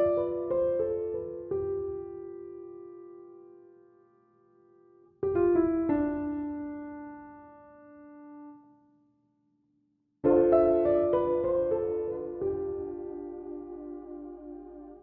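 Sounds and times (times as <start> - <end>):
piano notes: 10.2 - 15.0.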